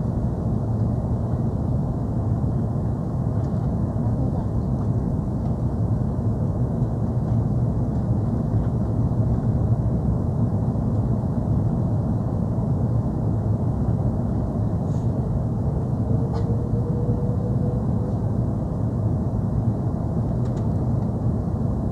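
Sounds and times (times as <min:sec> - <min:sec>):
airliner cabin engine rumble: 0:00.0 - 0:21.9
faint rising whine: 0:14.6 - 0:20.0.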